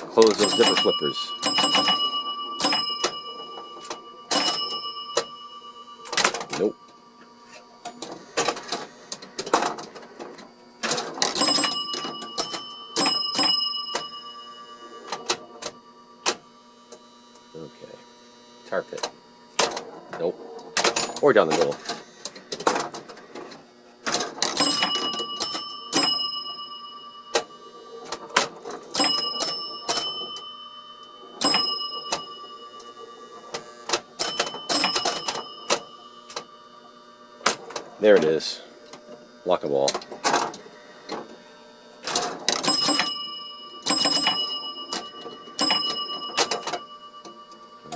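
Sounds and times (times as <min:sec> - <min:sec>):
pinball machine clacks and knocks: 0:00.0 - 0:05.4, 0:06.0 - 0:06.8, 0:10.8 - 0:14.3, 0:19.6 - 0:36.5, 0:42.0 - 0:47.9
ringing scoring chimes: 0:00.0 - 0:08.1, 0:11.2 - 0:16.9, 0:24.4 - 0:38.5, 0:42.5 - 0:47.9.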